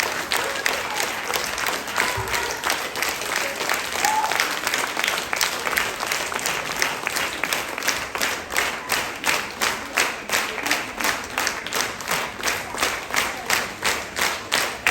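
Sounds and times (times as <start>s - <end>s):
audience applause: 0.0s - 14.9s
rhythmic clapping in unison: 0.0s - 14.9s.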